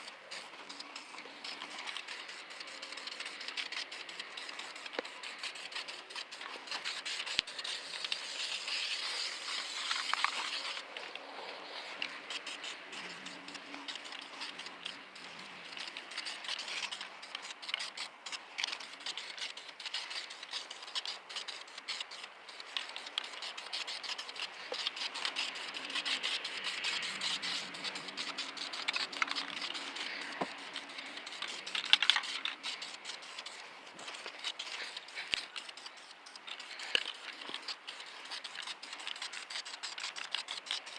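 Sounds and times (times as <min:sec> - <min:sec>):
aerosol spray hissing: 0:00.0 - 0:10.9
spray cans clicking and rattling: 0:00.0 - 0:40.9.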